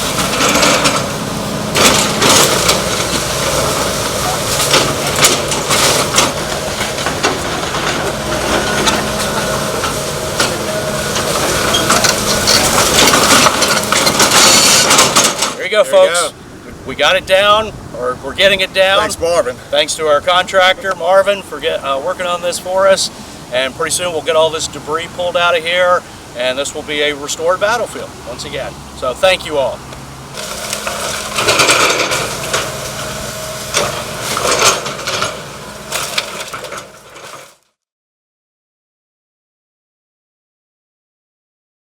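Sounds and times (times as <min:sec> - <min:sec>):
debris clattering: 0:00.0 - 0:15.6, 0:30.4 - 0:37.6
machine engine drone: 0:00.0 - 0:15.6, 0:30.3 - 0:37.4
wood cracking and splintering: 0:10.4 - 0:15.6, 0:30.4 - 0:33.1
timber cracking and splintering: 0:11.5 - 0:15.3.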